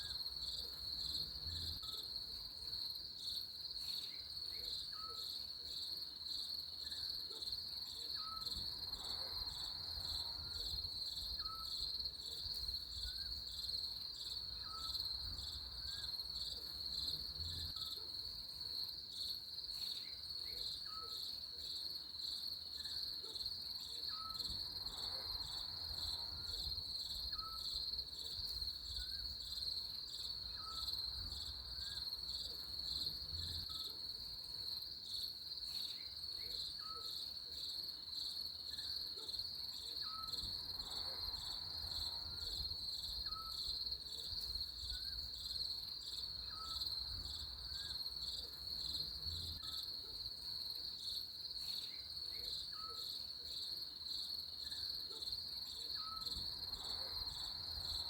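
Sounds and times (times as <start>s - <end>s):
insects pulsing trill: 23.8s - 37.5s, 39.7s - 58.0s.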